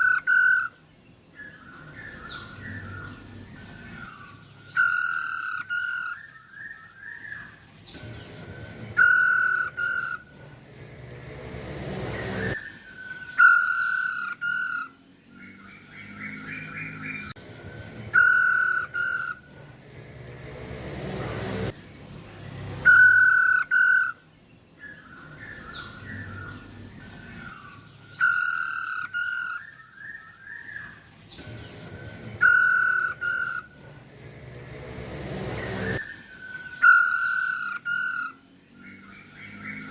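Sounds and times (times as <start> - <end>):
bird harsh two-part call: 13.4 - 14.9, 22.9 - 24.2, 36.8 - 38.4.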